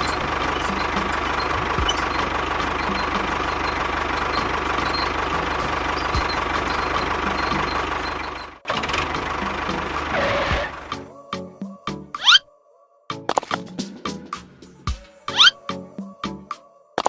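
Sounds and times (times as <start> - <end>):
motor running with low pulsing: 0.0 - 10.9.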